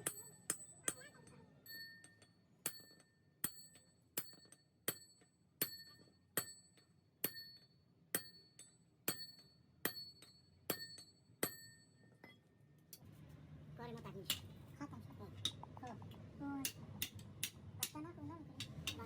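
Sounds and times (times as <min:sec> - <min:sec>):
hammer striking steel: 0:16.6 - 0:18.0.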